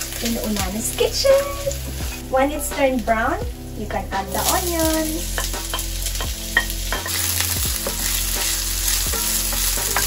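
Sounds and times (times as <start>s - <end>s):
onion and garlic sizzling in oil: 0.0s - 10.0s
wooden spoon scraping a pan: 1.1s - 2.2s.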